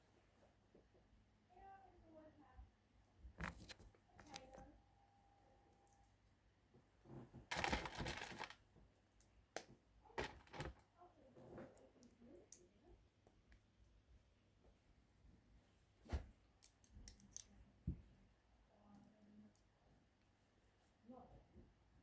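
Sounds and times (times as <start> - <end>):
plastic pieces rustling clatter: 7.5 - 8.6, 10.2 - 10.8.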